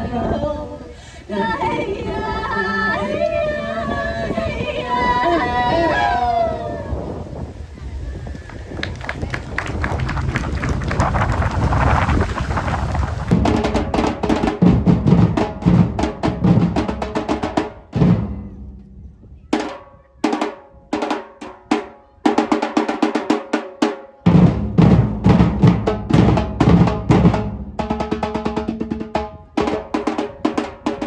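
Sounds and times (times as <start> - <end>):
snare and bass drum rhythm: 13.2 - 18.8, 19.6 - 31.0.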